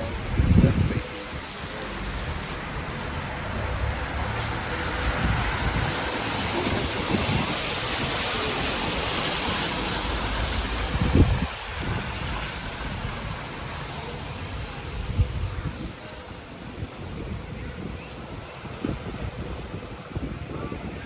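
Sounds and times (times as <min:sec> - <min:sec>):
car passing: 0:00.0 - 0:14.3
wind rumbling on microphone: 0:00.0 - 0:21.0.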